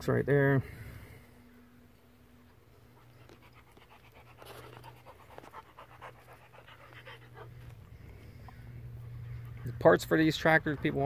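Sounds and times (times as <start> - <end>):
faint low hum: 0.0 - 11.0
dog panting: 2.8 - 11.0.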